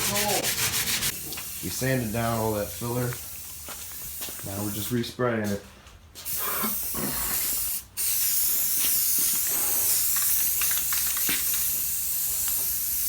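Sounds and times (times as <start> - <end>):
aerosol spray hissing: 6.3 - 13.0.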